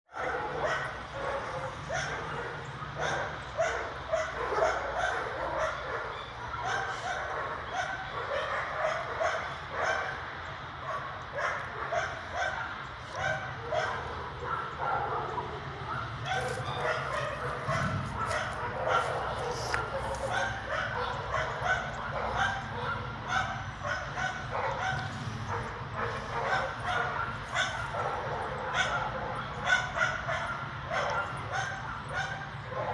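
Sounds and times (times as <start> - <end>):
steady low rumble: 12.2 - 21.2.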